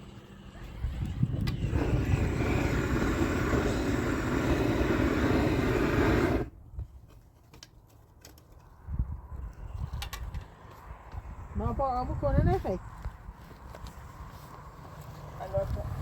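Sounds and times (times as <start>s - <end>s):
gas torch flame roaring: 0.0s - 6.6s.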